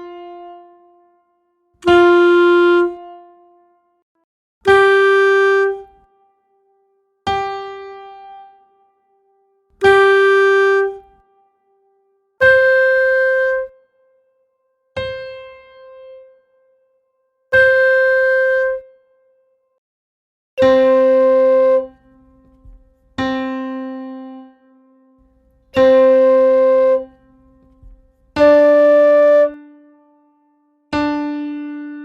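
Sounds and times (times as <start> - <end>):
single practice notes: 1.8 - 3.2, 4.7 - 6.0, 9.8 - 11.2, 12.4 - 13.7, 17.6 - 18.8, 20.6 - 23.3, 25.2 - 29.6.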